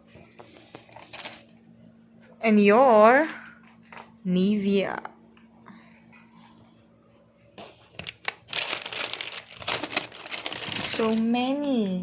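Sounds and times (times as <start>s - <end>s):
plastic packaging crinkling: 0.6s - 1.6s, 7.9s - 12.0s.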